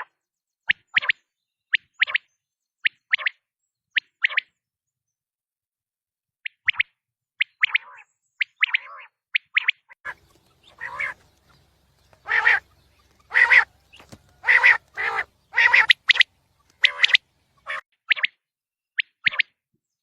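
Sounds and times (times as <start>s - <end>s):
quail calling: 10.0s - 17.8s.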